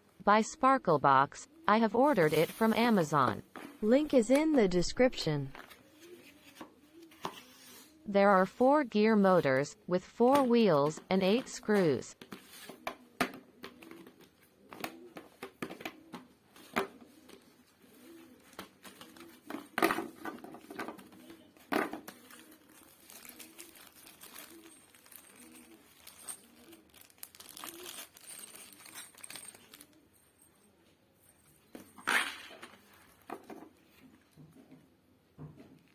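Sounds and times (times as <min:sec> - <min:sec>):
plastic packaging crinkling: 0:22.2 - 0:30.0.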